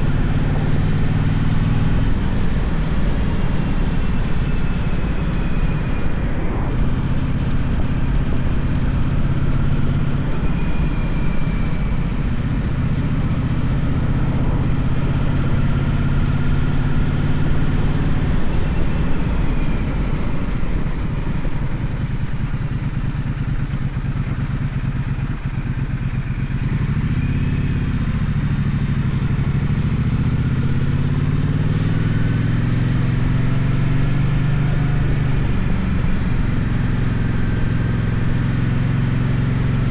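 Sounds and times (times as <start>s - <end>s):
wind rush: 0.0s - 23.3s
motorcycle engine running: 0.0s - 39.9s.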